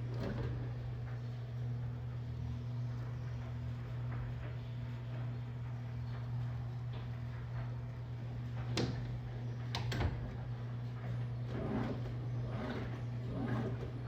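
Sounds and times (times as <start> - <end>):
washing machine humming: 0.0 - 14.0.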